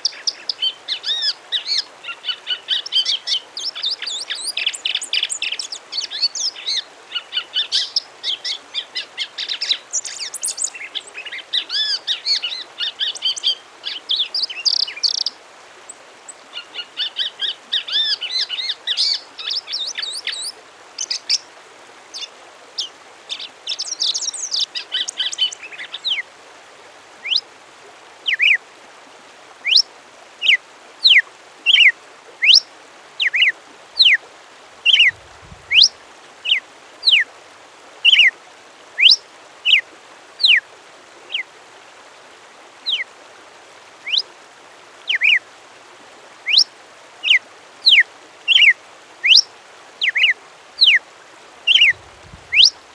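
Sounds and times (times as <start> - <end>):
songbird warbling: 0.0 - 15.4, 16.5 - 21.4, 22.1 - 26.2, 27.2 - 27.4, 28.3 - 28.6, 29.6 - 34.2, 34.8 - 37.2, 38.1 - 38.3, 39.0 - 39.8, 40.4 - 40.6, 42.8 - 43.1, 44.0 - 44.3, 45.1 - 45.4, 46.4 - 51.0, 51.7 - 52.9.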